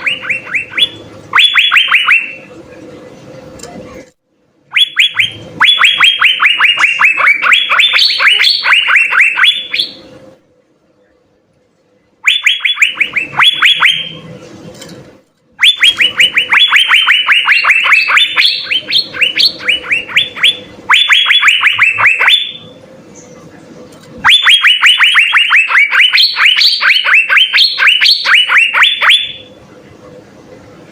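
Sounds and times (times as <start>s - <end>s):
bird whistling rapid notes: 4.7s - 10.1s, 15.6s - 22.6s.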